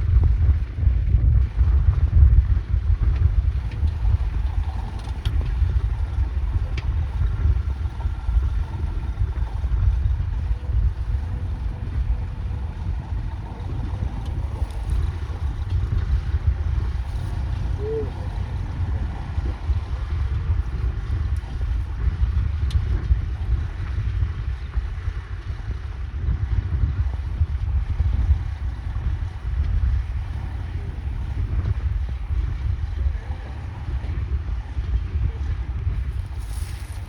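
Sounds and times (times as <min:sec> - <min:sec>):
tractor engine running: 0:00.0 - 0:24.0
wind buffeting microphone: 0:00.0 - 0:37.0.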